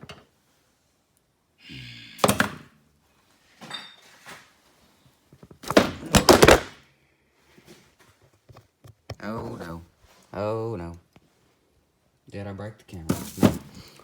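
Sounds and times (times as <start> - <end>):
camera clattering over: 5.6 - 6.7.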